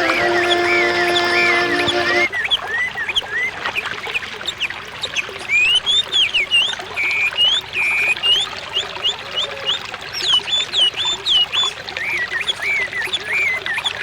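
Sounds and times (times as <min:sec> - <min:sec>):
bird singing whistled notes: 0:00.0 - 0:03.4
water trickling: 0:00.0 - 0:14.0.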